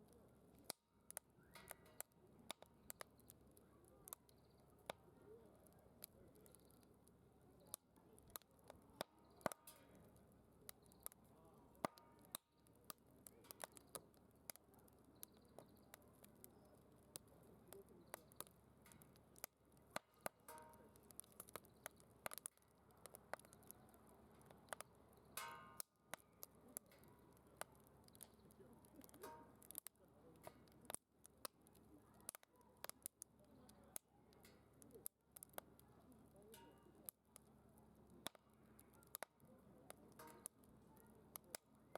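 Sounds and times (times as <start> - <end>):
firewood crackling: 0.0 - 41.9.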